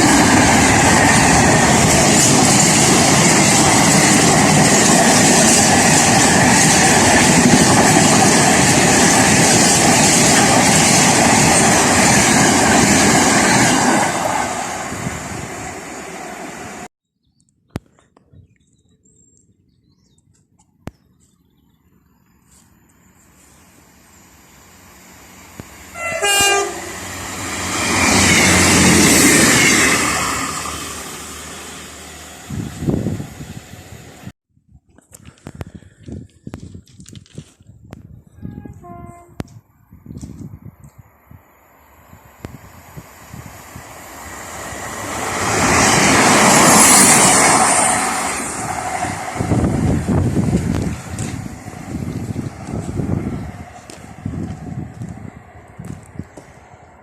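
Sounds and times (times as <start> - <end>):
train rushing past on rails: 0.0 - 16.9, 23.2 - 34.3, 40.4 - 57.0
train horn blast: 25.9 - 27.1, 38.3 - 39.6.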